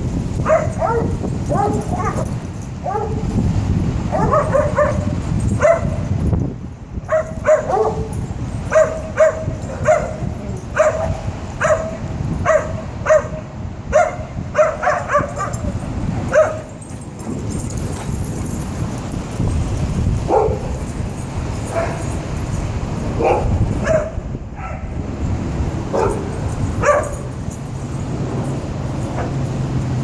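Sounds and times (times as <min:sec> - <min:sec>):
dog barking: 0:00.4 - 0:03.3, 0:04.1 - 0:06.1, 0:07.1 - 0:16.8, 0:20.3 - 0:20.8, 0:21.6 - 0:22.2, 0:23.2 - 0:25.0, 0:25.9 - 0:27.3, 0:29.1 - 0:29.4.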